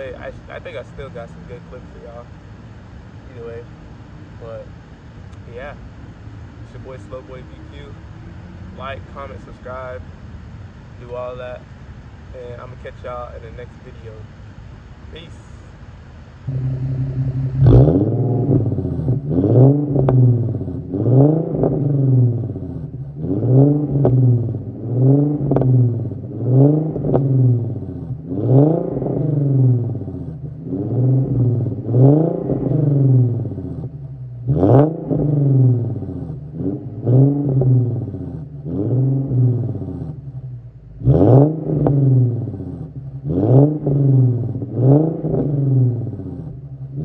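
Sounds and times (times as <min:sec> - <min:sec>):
car engine revving: 0:16.4 - 0:47.0.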